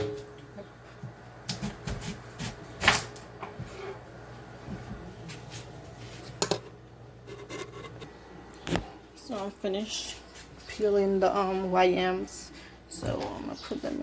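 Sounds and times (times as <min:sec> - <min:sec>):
knocks and scrapes of peeling and cutting: 0:01.5 - 0:04.0.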